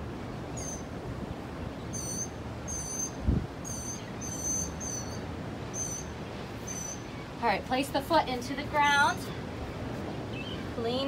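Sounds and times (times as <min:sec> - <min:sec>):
bird chirping: 0:00.5 - 0:00.9, 0:01.6 - 0:07.4, 0:09.3 - 0:10.7
ocean surf washing: 0:04.7 - 0:11.0.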